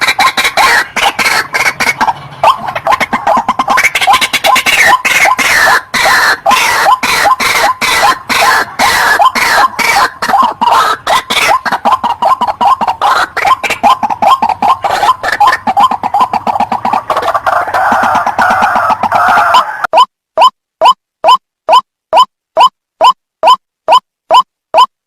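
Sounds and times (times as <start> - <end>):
bird harsh croaking calls: 0.0 - 20.0.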